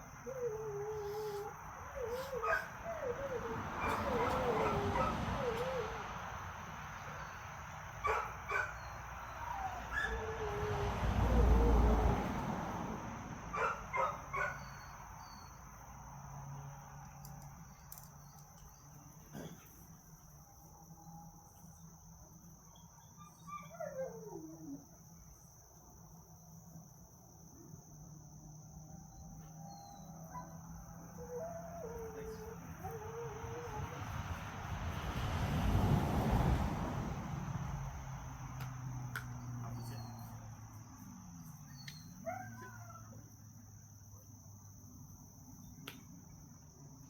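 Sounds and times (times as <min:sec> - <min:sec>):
high insect drone: 0:00.0 - 0:47.0
dog whining: 0:00.2 - 0:06.0, 0:31.2 - 0:34.0
dogs yipping: 0:00.3 - 0:06.0, 0:08.0 - 0:10.7, 0:13.5 - 0:15.4, 0:23.0 - 0:24.8, 0:41.7 - 0:43.2.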